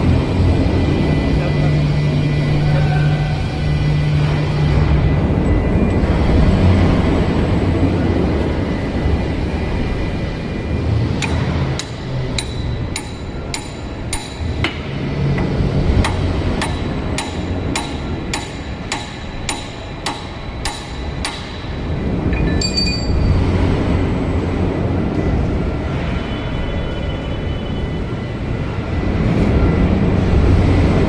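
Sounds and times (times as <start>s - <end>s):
steady low rumble: 0.0s - 26.1s
hammer striking steel bolts: 11.2s - 21.7s
light metallic clinks: 22.4s - 23.3s.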